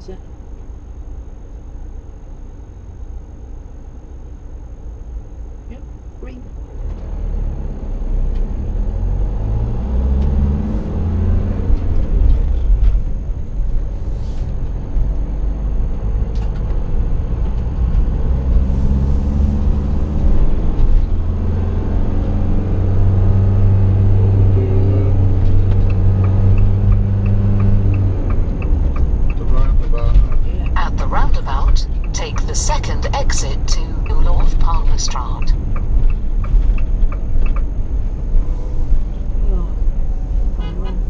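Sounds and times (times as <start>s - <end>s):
vehicle engine and road noise: 0.0s - 41.0s
turn indicator ticking: 25.4s - 38.4s.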